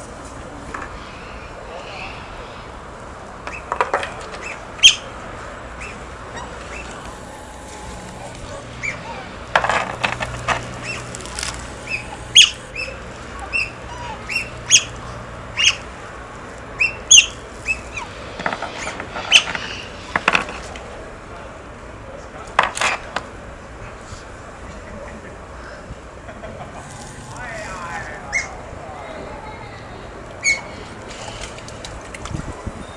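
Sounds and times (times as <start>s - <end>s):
otters chirping and squeaking: 5.8s - 7.0s, 8.8s - 9.3s, 10.8s - 11.2s, 11.8s - 15.0s, 16.8s - 18.1s, 18.7s - 20.0s.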